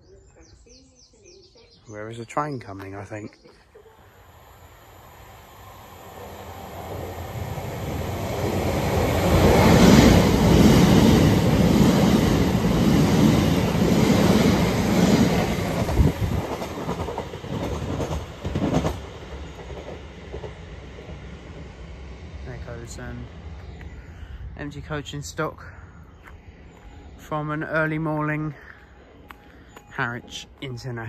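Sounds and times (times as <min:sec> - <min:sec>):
electric train passing: 0:03.8 - 0:31.0.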